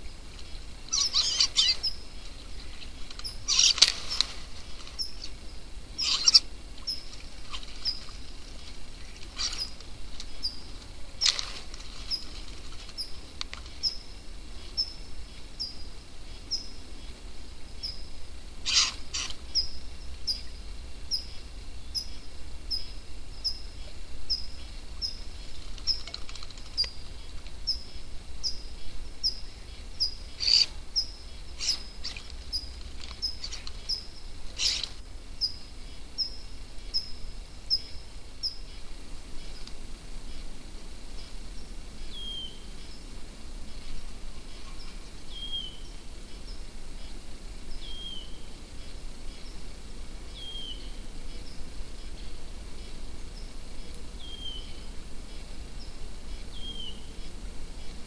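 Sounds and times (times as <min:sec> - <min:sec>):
bird chirping: 0:00.0 - 0:39.7, 0:41.2 - 0:49.6, 0:50.3 - 0:58.0
wing flutters: 0:00.4 - 0:05.4, 0:06.0 - 0:13.8, 0:18.6 - 0:19.4, 0:25.3 - 0:27.5, 0:31.6 - 0:35.0.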